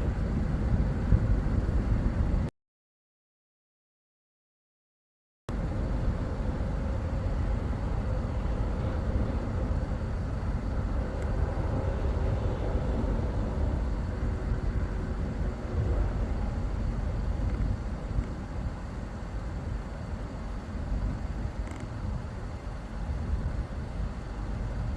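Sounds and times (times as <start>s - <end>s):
vehicle engine and road rumble: 0.0s - 2.5s, 5.5s - 24.9s
faint steady drone: 5.5s - 24.9s.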